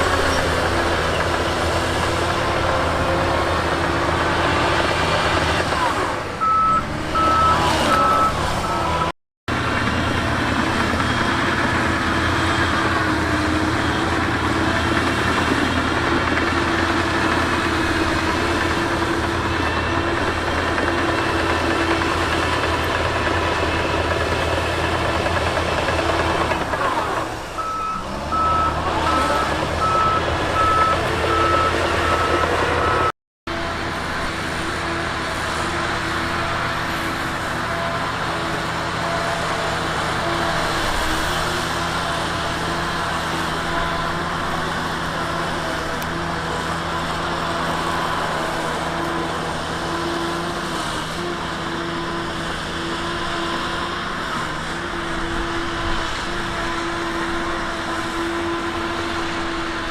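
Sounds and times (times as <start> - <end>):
heavy diesel machinery running: 0.0 - 59.9
reverse alarm beeping: 6.4 - 9.1, 27.6 - 33.1.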